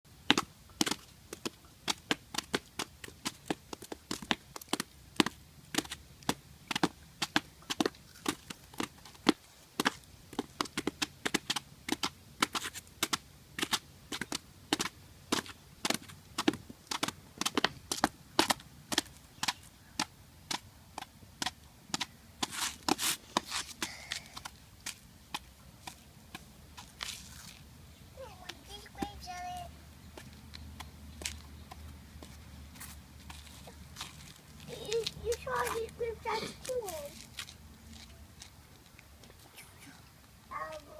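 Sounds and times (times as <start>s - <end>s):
crunchy snack being chewed: 7.9s - 8.3s.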